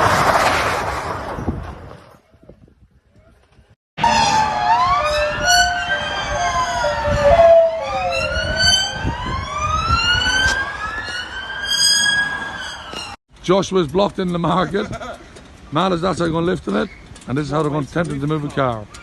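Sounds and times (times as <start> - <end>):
low traffic rumble: 0.0 - 19.0
emergency vehicle sirens wailing: 4.0 - 13.2.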